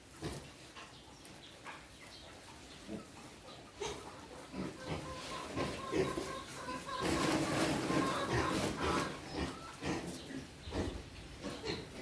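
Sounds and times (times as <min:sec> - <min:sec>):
pigs grunting: 0:03.8 - 0:12.0.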